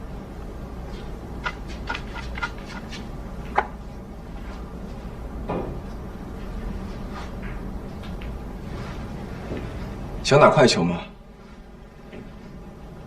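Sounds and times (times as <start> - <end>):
low room hum: 0.0 - 13.0
billiard balls clicking: 1.4 - 3.7.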